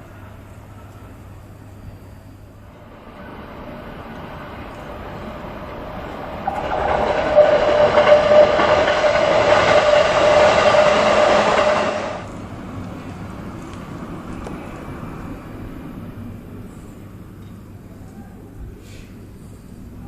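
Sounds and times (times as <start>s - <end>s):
electric train passing: 1.2s - 18.6s
steady tone: 2.6s - 12.3s.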